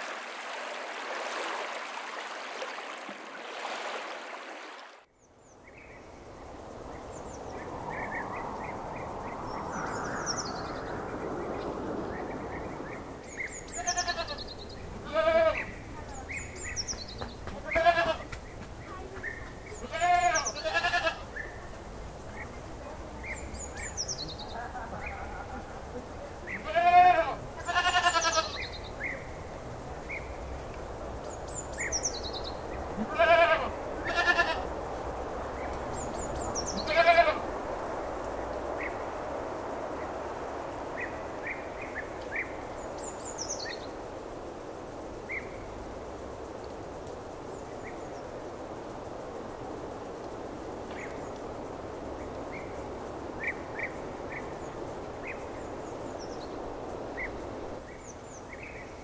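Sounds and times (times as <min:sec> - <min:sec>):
steady background hiss: 0:00.0 - 0:59.0
small birds chirping: 0:04.6 - 0:34.7, 0:35.5 - 0:37.6
goats bleating: 0:13.8 - 0:14.4, 0:15.0 - 0:15.6, 0:17.5 - 0:18.3, 0:19.8 - 0:21.2, 0:26.6 - 0:28.5, 0:33.0 - 0:34.6, 0:36.8 - 0:37.4.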